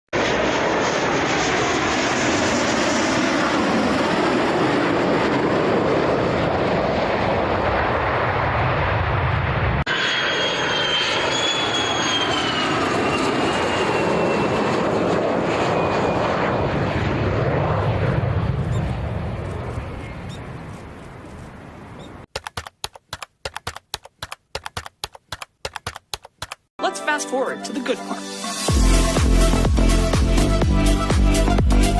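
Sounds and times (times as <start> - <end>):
aircraft engine whine falling: 0.2 - 22.2
military aircraft engines: 0.2 - 22.2.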